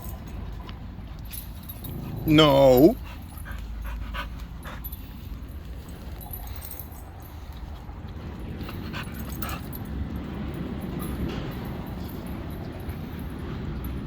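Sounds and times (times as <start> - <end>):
dog making short faint sounds: 2.0 - 3.0.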